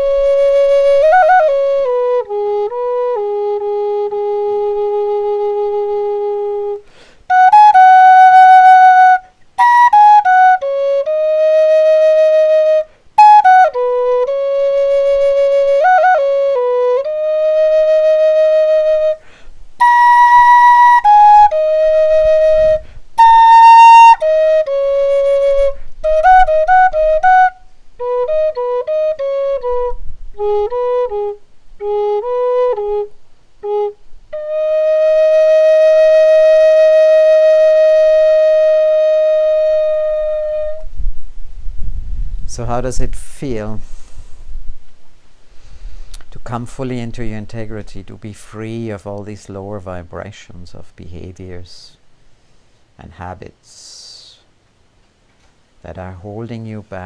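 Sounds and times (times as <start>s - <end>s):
solo flute melody: 0.0s - 42.4s
breaths: 6.8s - 7.3s, 19.2s - 19.6s, 22.8s - 23.1s, 43.8s - 44.6s, 45.4s - 46.3s.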